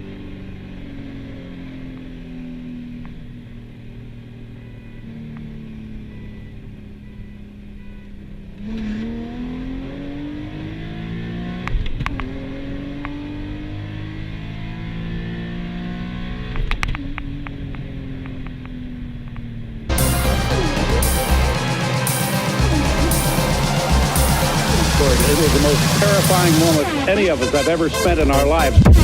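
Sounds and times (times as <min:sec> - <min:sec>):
car engine revving: 0:08.4 - 0:18.3, 0:19.9 - 0:29.0.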